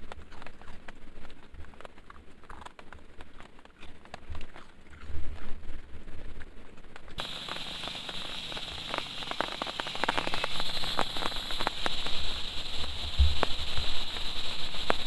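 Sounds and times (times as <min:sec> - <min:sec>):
heavy rain falling: 0:07.2 - 0:15.0
rain drops tapping: 0:07.2 - 0:15.0.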